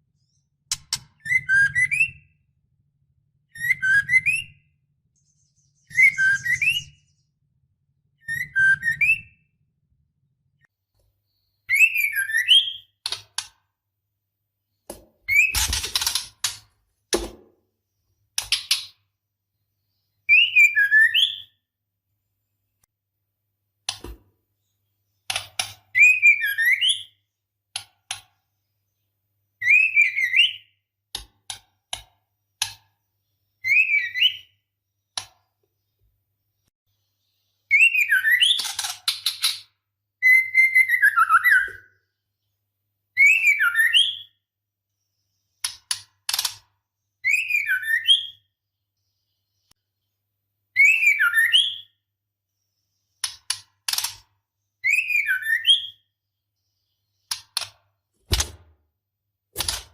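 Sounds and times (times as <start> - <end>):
bird whistled calls: 5.8 - 7.1, 8.2 - 9.4, 50.8 - 51.9.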